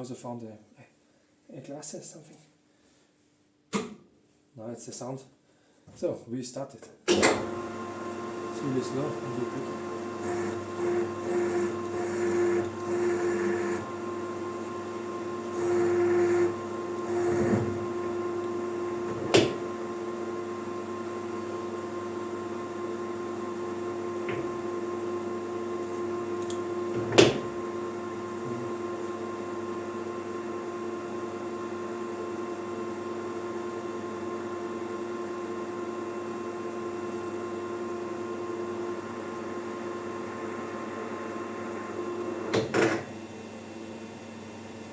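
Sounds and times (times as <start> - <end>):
metal lathe motor hum: 7.4 - 29.8.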